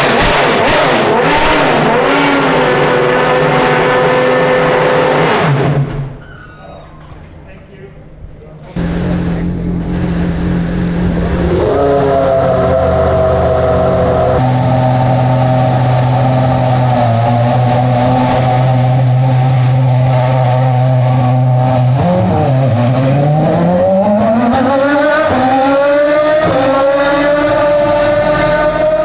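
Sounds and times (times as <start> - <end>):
racing car engine accelerating: 0.0 - 6.0, 8.8 - 29.0.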